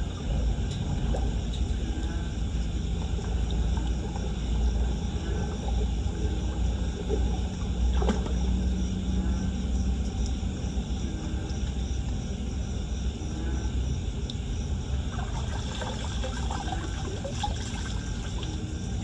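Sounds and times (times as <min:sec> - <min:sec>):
water splashing and trickling: 0:00.0 - 0:08.6, 0:14.8 - 0:19.0
steady low rumble: 0:00.0 - 0:19.0.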